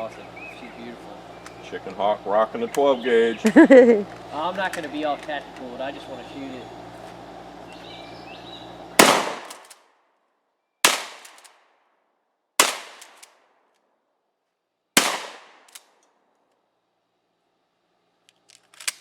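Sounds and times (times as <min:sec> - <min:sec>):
shotgun shots echoing: 0:09.0 - 0:09.7, 0:10.8 - 0:11.4, 0:12.6 - 0:13.2, 0:15.0 - 0:15.8.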